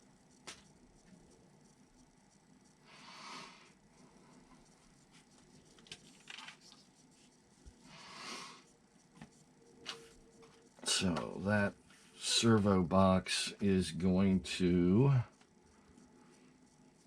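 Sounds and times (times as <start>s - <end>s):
faint clicks of small parts: 3.9s - 7.8s.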